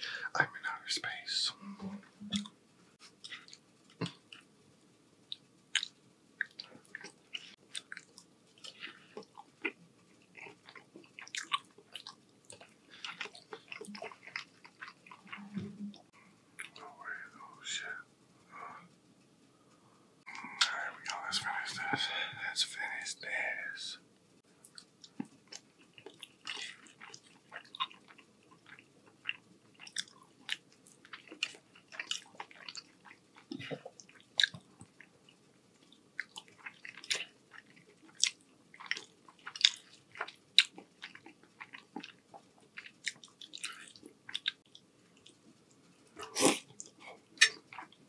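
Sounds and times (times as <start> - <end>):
chewing with wet mouth smacks: 5.3 - 15.7, 24.6 - 45.4, 46.2 - 48.0.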